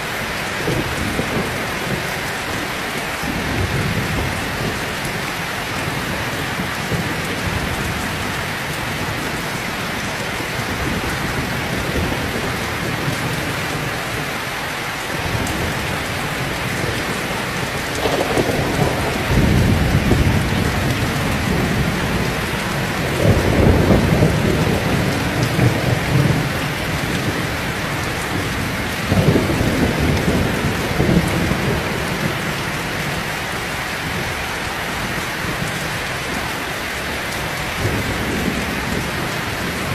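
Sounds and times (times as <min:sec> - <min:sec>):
heavy rain: 0:00.0 - 0:39.9
thunder rolling: 0:15.2 - 0:33.2.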